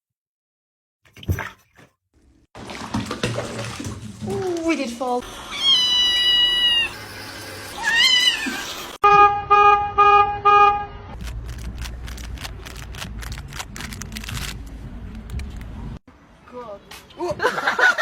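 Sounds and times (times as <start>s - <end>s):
cat meowing: 5.5s - 7.0s, 7.8s - 8.9s.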